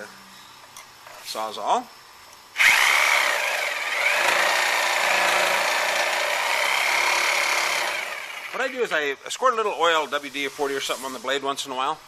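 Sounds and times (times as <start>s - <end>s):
reciprocating saw cutting metal: 2.6s - 8.8s.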